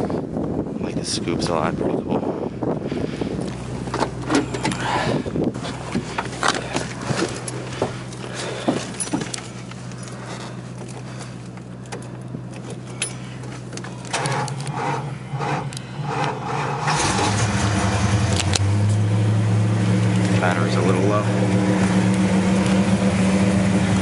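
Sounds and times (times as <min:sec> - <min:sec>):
car engine idling: 0:00.0 - 0:24.0
car starter cranking: 0:03.9 - 0:18.8
keys jangling: 0:12.0 - 0:14.7.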